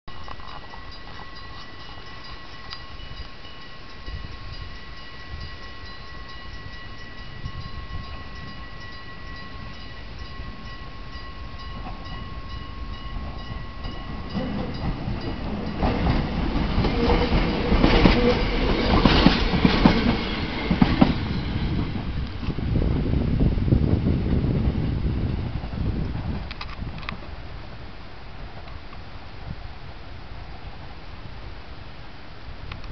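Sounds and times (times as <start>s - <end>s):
electric train passing: 0.1s - 32.5s
wheels clattering over rail joints: 10.2s - 22.5s.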